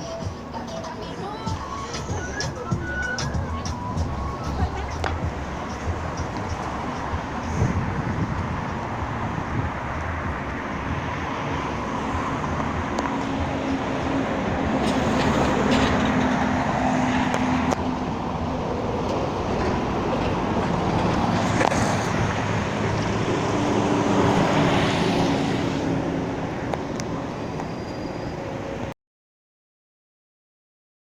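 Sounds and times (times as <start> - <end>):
vehicle rushing noise: 1.3 - 28.9.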